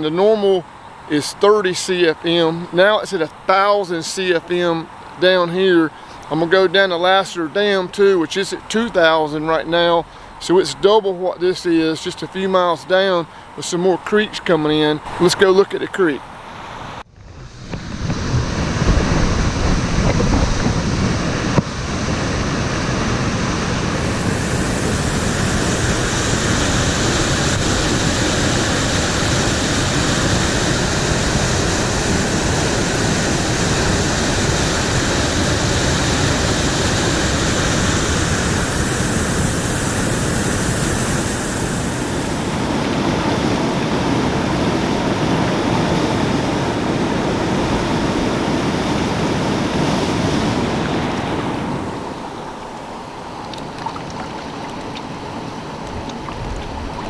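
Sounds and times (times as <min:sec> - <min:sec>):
rushing floodwater: 0:00.0 - 0:57.0.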